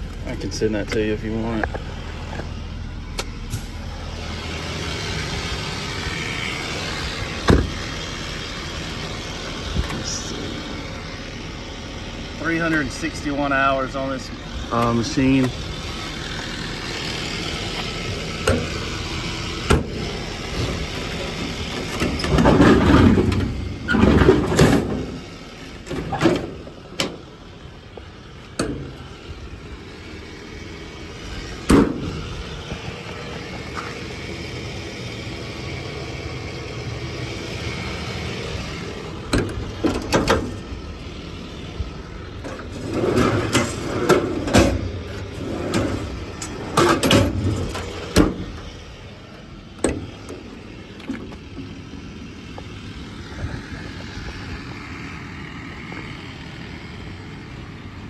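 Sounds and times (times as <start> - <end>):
steady low hum: 0.0 - 58.0
metal doors and latches clunking: 7.4 - 7.8, 19.7 - 25.2, 25.8 - 27.2, 39.3 - 40.6, 42.4 - 48.7, 49.8 - 50.4.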